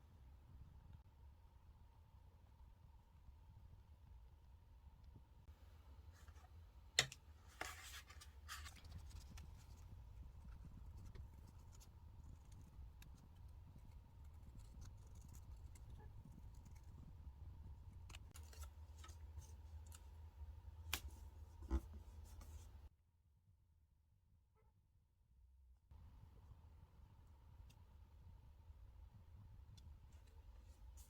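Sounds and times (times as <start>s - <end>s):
paper scratching and handling: 7.4s - 17.2s, 17.9s - 20.1s.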